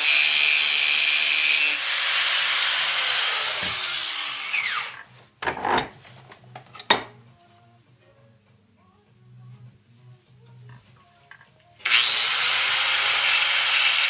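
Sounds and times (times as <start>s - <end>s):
power tool motor winding down: 1.7s - 5.0s, 11.8s - 14.0s.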